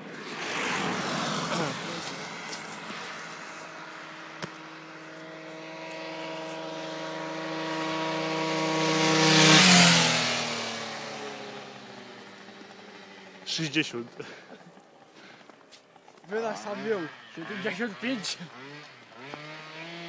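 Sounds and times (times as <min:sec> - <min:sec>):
scooter riding past: 0:00.0 - 0:20.0.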